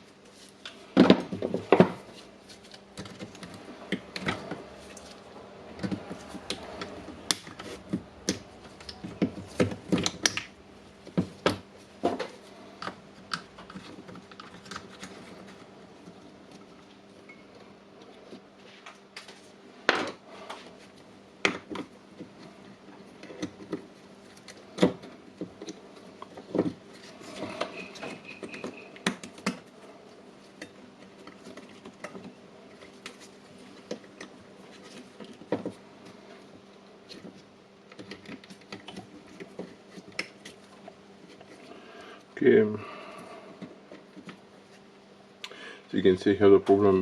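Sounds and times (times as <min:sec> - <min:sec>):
faint steady hum: 0:00.0 - 0:47.0
clicks and knocks of plastic parts: 0:30.5 - 0:41.6.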